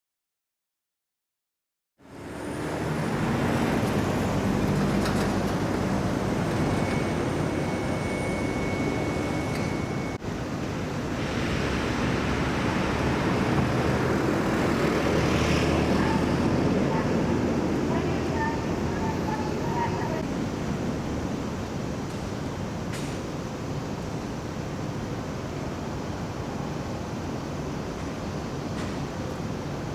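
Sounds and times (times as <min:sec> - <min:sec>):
vehicle engines running: 0:02.0 - 0:21.3
steady road noise: 0:02.0 - 0:29.9.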